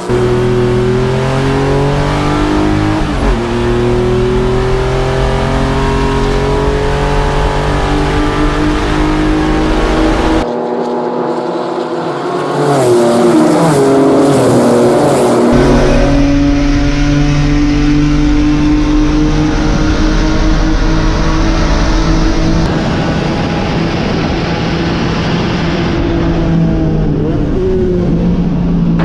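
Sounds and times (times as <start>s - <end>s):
race car engine running at high revs: 0.0s - 29.0s
wind and road noise: 0.0s - 29.0s.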